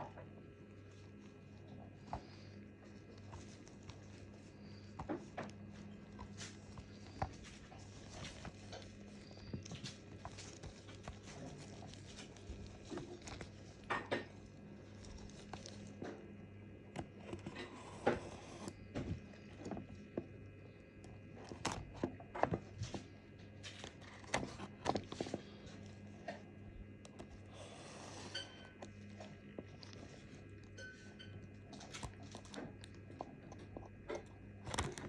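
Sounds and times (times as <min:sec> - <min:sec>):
steady low hum: 0:00.0 - 0:35.0
packaging rustle: 0:02.2 - 0:33.9
clicks and taps handling packaging: 0:16.9 - 0:27.5, 0:28.2 - 0:35.0.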